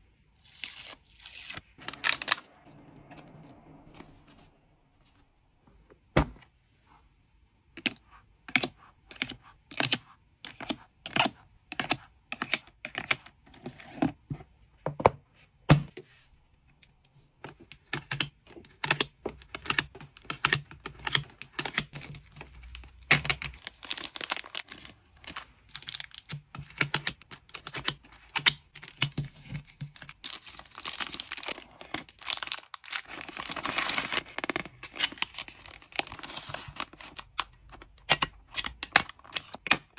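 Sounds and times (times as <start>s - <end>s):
plastic packaging crinkling: 22.0s - 26.4s, 28.6s - 37.8s.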